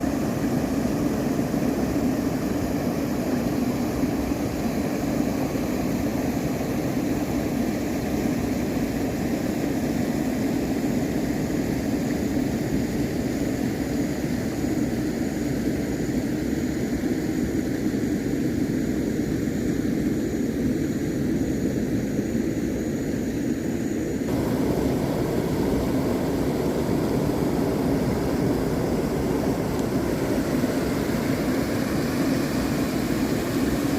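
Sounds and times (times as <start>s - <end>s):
wind-like noise: 0.0s - 33.9s
motor rumble: 24.3s - 33.9s.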